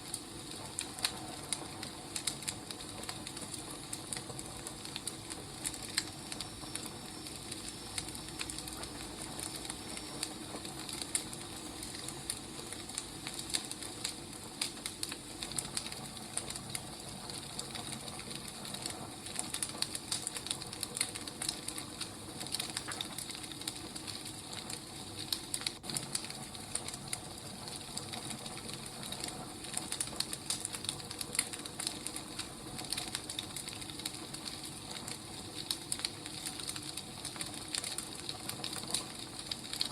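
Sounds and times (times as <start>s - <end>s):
firewood burning and crackling: 0.0s - 39.9s.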